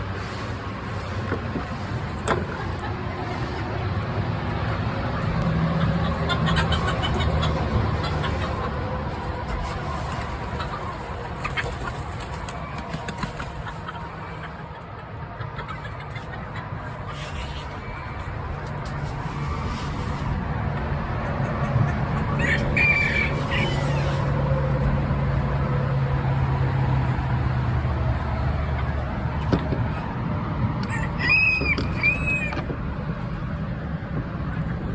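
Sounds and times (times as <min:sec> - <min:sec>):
chickens clucking: 0:00.7 - 0:34.9.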